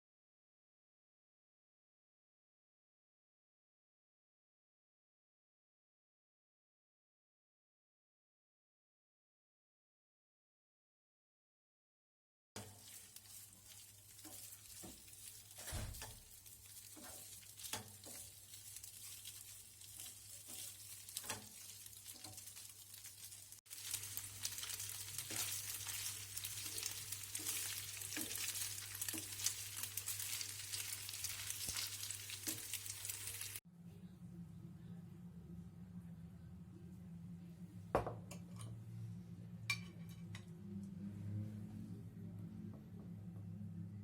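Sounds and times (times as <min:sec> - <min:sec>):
utensil tapping and scraping pan: 0:12.6 - 0:22.8, 0:25.1 - 0:31.0
food sizzling in hot oil: 0:12.6 - 0:33.6.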